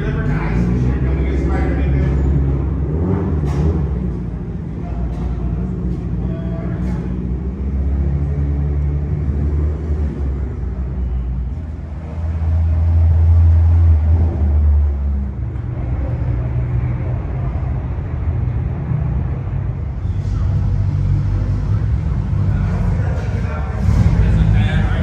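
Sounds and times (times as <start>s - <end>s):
car engine running: 14.1s - 25.0s.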